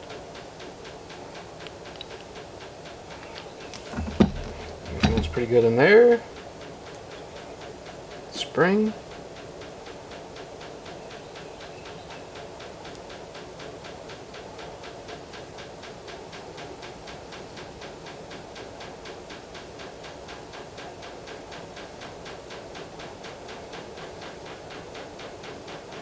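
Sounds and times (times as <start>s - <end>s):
mechanical ticking: 3.7s - 6.1s
low motor hum: 3.8s - 5.7s.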